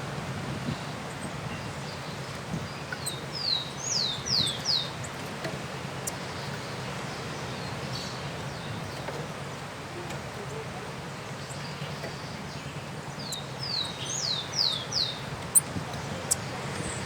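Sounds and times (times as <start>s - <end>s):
bird whistling song: 2.9s - 4.9s, 13.2s - 15.7s.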